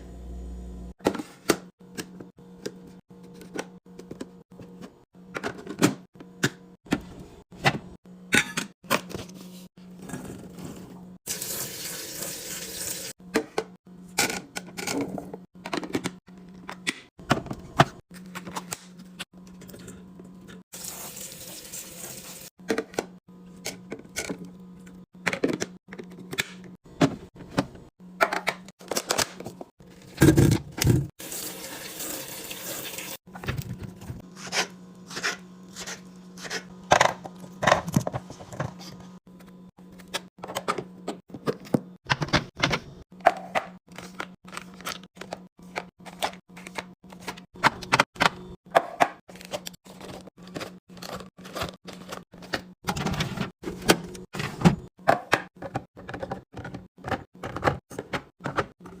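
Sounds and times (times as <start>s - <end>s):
water running: 11.3s - 13.2s, 20.7s - 22.5s, 31.2s - 33.2s.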